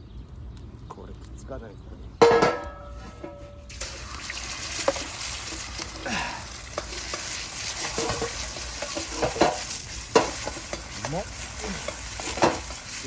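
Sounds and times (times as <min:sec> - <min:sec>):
metal knocking on a pan: 0:02.2 - 0:04.0, 0:04.8 - 0:12.8
rice sizzling in a frying pan: 0:03.6 - 0:13.0.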